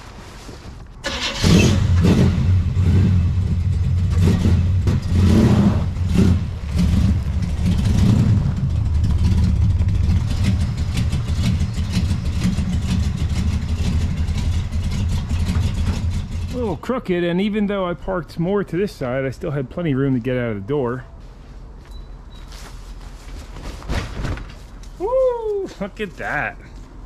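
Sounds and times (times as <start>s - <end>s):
car engine starting and revving: 1.0s - 16.6s.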